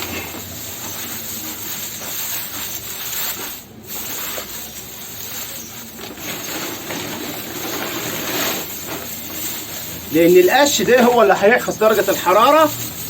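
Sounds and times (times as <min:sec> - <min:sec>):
dry straw rustling: 0:00.0 - 0:13.0.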